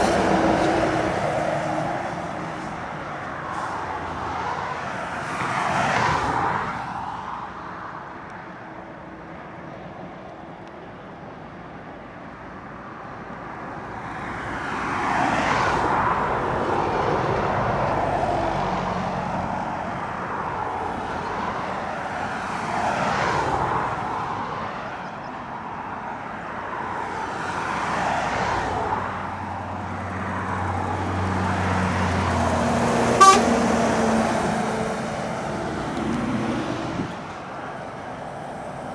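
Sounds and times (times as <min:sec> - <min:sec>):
heavy lorries passing: 0:00.0 - 0:38.9
diesel truck drone: 0:29.0 - 0:38.9.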